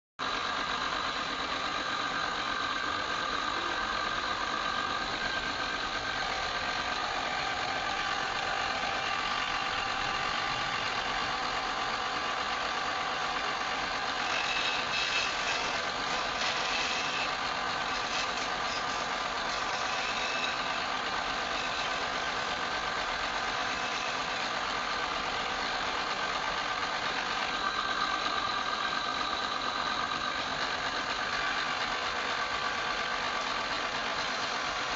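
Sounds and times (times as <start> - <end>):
wood lathe motor whine: 0.2 - 34.9
turning tool scraping wood: 6.0 - 28.4, 30.4 - 34.9.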